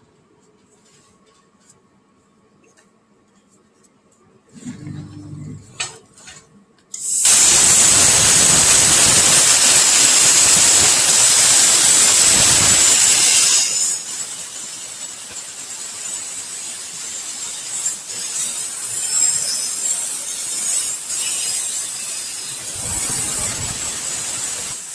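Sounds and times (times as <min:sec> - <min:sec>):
plasma torch hissing: 0:07.0 - 0:24.9.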